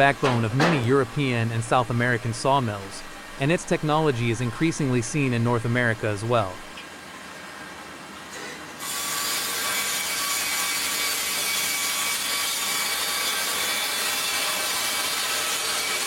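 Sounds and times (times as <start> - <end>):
bandsaw cutting through log: 8.8 - 16.0.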